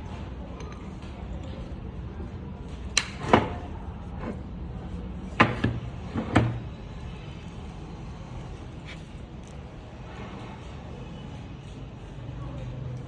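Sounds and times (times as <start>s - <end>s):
hard objects knocking: 5.3s - 6.8s.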